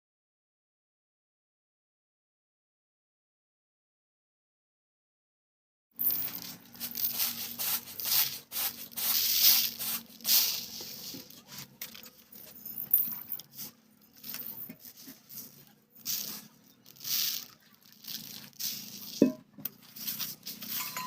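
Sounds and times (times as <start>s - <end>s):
scraping and rubbing strokes: 6.0s - 21.0s.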